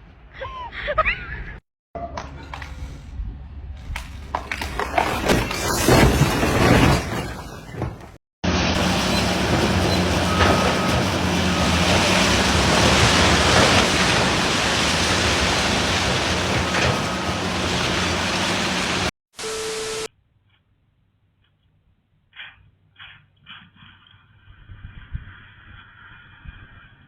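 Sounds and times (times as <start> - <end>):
road and wind noise: 7.4 - 19.1
brief steady tone: 19.4 - 20.1.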